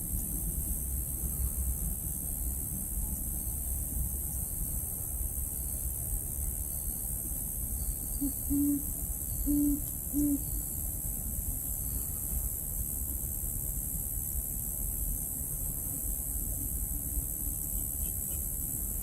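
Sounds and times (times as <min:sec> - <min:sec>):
steady background hiss: 0:00.0 - 0:19.0
owl hooting: 0:08.2 - 0:10.6.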